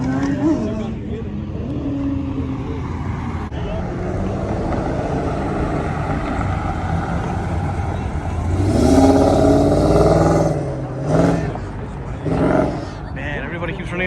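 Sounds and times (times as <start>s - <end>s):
car engine accelerating: 0.0s - 13.4s
car engines rumbling: 0.0s - 14.0s.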